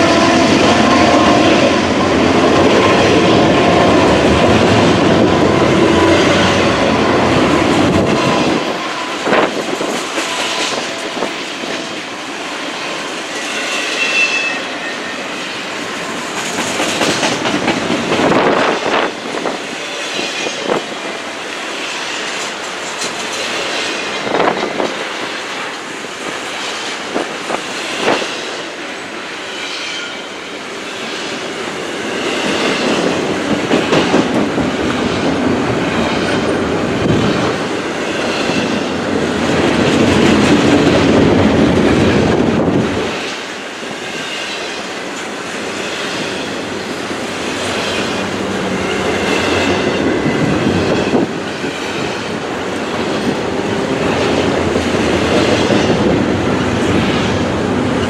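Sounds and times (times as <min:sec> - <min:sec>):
train wheels clacking over rails: 0:00.0 - 0:58.0
high wheel squeal: 0:13.2 - 0:16.4.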